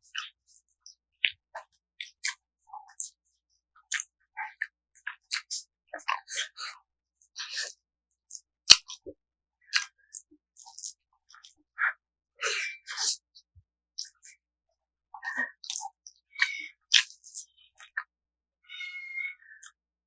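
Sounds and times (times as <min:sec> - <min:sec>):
chewing and lip-smacking: 0:15.6 - 0:15.8.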